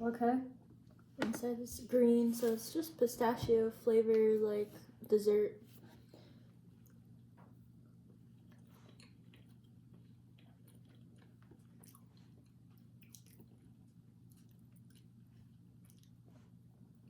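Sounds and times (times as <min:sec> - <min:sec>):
low steady hum: 0:00.0 - 0:17.0
chewing soft cake: 0:06.3 - 0:17.0.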